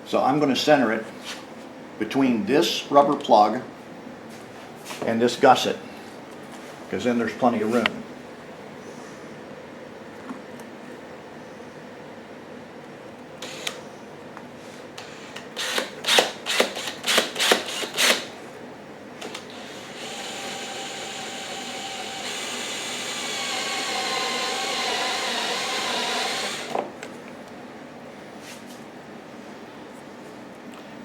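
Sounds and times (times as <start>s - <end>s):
electric drill boring plastic: 13.4s - 13.8s, 15.0s - 18.3s, 19.2s - 26.9s.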